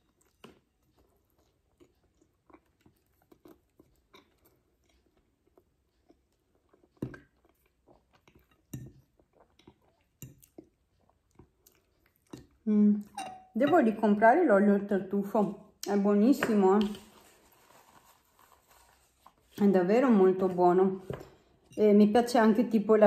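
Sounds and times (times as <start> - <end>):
person chewing: 0.0 - 13.2.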